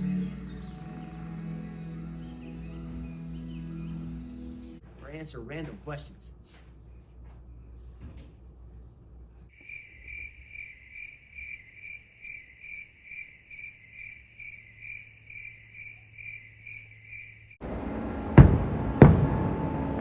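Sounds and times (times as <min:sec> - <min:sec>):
cricket chirping: 0:09.5 - 0:17.6.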